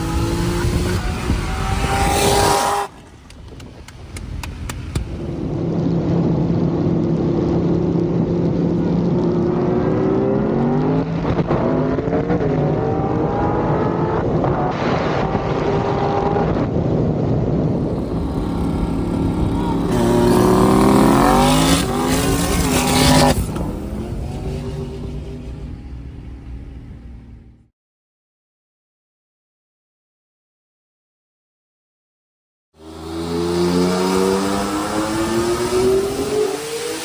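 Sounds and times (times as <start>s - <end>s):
car engine revving through gears: 0.0s - 5.6s, 17.7s - 27.6s, 32.8s - 37.0s.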